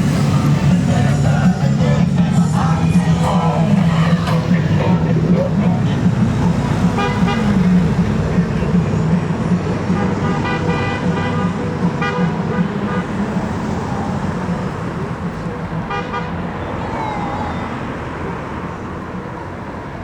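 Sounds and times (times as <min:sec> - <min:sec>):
motorcycle horn toots: 0:10.0 - 0:13.0.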